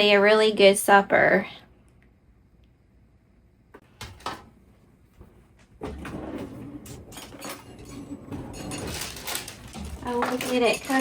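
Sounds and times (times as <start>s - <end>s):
kitchen clattering and rustling: 3.8s - 4.6s, 5.7s - 11.0s.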